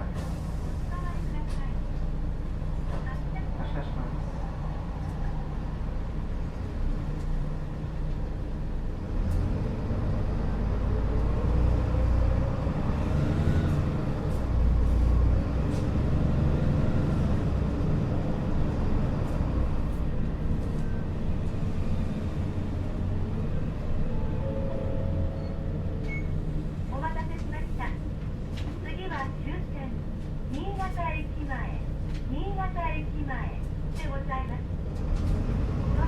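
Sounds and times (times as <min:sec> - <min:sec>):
bus engine and road rumble: 0:00.0 - 0:36.0.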